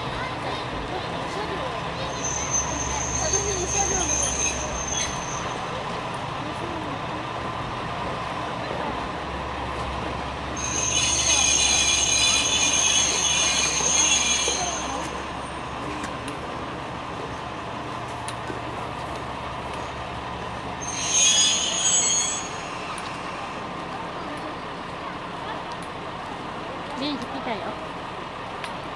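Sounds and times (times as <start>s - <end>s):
train brakes squealing: 1.9s - 5.9s, 10.4s - 16.2s, 20.6s - 24.2s.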